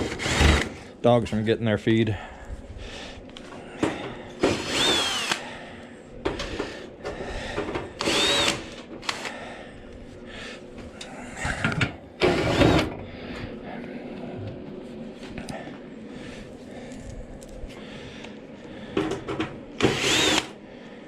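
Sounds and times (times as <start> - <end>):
power drill whining: 0.0 - 0.8, 4.4 - 5.5, 8.0 - 9.3, 12.2 - 12.9, 19.8 - 20.6.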